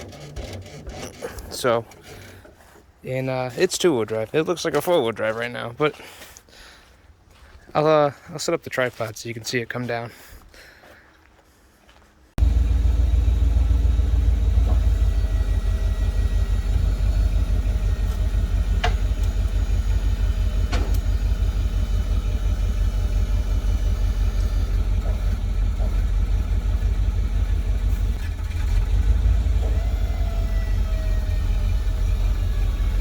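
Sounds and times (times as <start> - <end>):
truck engine idling: 12.4 - 33.0.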